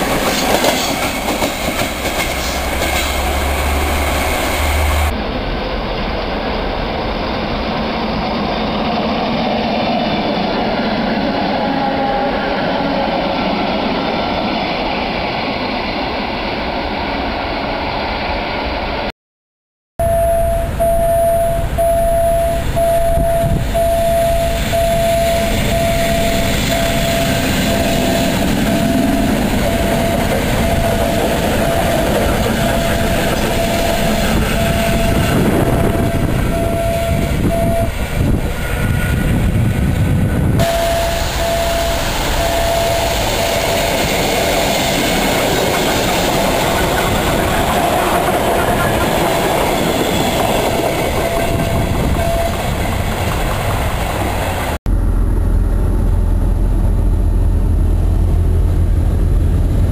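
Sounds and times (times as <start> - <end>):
electric trains passing: 0.0 - 19.1, 20.0 - 59.9
beeping tone: 20.0 - 37.9, 40.6 - 44.7, 50.0 - 52.7.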